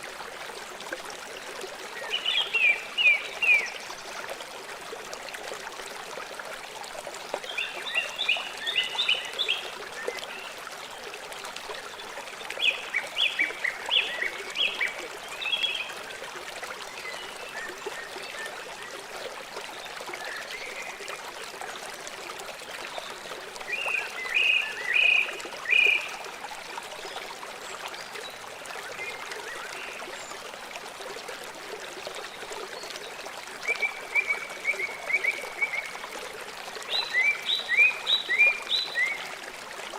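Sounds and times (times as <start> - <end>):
river water running: 0.0 - 39.9.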